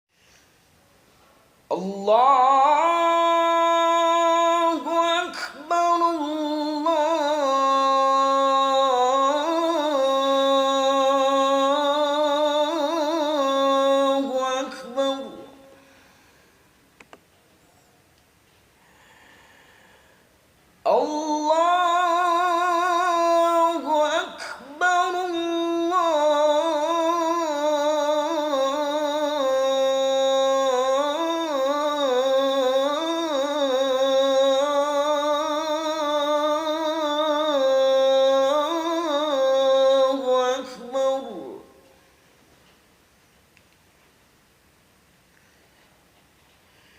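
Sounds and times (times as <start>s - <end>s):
man chanting call to prayer: 1.7s - 15.8s, 20.9s - 42.0s.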